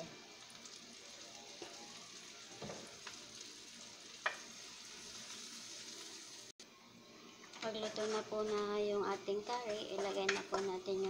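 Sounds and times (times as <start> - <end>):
onions sizzling in oil: 0.0 - 6.6.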